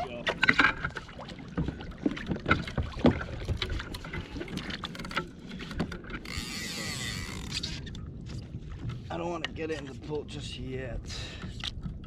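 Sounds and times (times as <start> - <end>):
small water splashes: 0.0 - 8.0.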